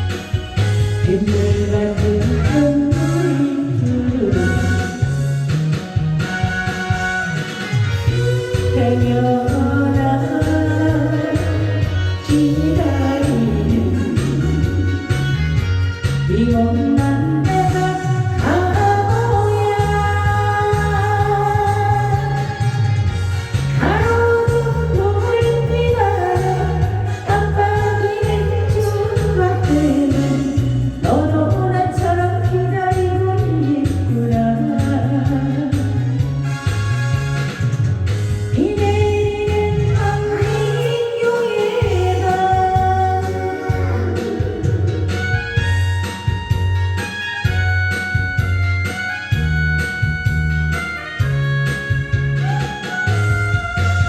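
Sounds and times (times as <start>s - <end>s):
backing track with stepping bass: 0.0s - 54.0s
person singing long sliding notes: 8.0s - 15.4s, 16.3s - 35.6s, 38.6s - 45.4s.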